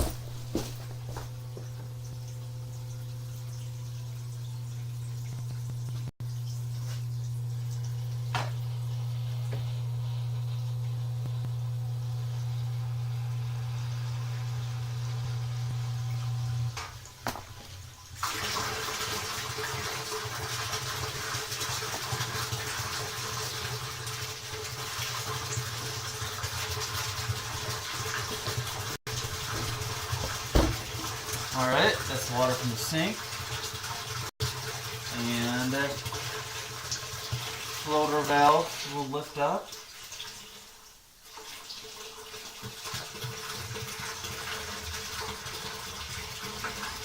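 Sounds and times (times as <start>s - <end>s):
water draining into pit: 13.9s - 40.4s
water pouring into a pit: 18.2s - 28.3s.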